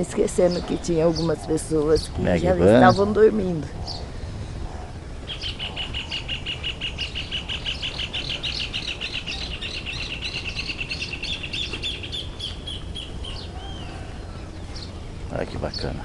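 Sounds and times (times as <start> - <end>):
higher looser bird notes: 0.0 - 16.0
bird chirping rapidly: 5.2 - 16.0.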